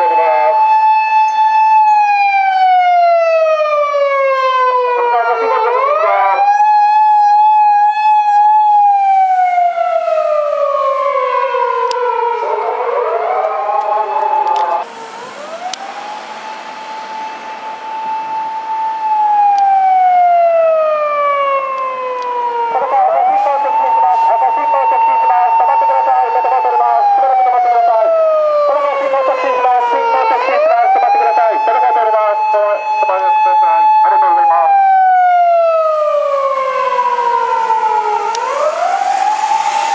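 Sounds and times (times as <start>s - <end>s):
police car siren wailing: 0.0s - 39.9s.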